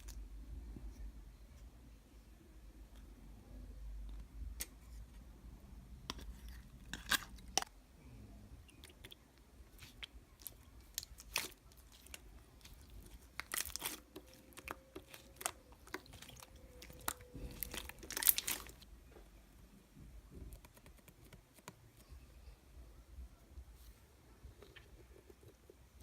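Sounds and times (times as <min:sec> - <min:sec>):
close crunching and crinkling: 0:08.7 - 0:18.9.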